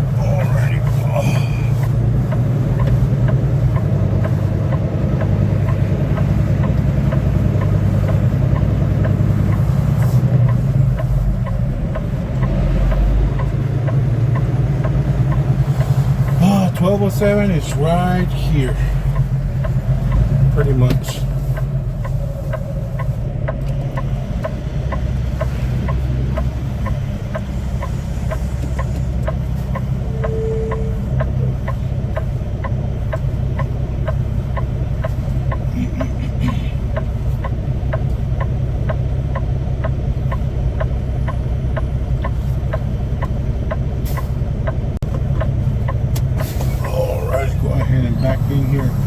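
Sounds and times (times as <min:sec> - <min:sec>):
diesel truck engine running: 0:00.0 - 0:49.0
light regular ticking: 0:00.0 - 0:49.0
short tone: 0:29.9 - 0:31.5.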